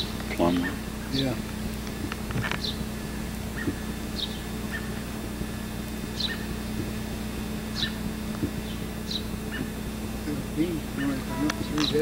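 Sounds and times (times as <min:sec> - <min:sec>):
low hum: 0:00.0 - 0:12.0
bird chirping: 0:02.5 - 0:05.0, 0:06.1 - 0:06.8, 0:07.7 - 0:09.8, 0:10.8 - 0:12.0.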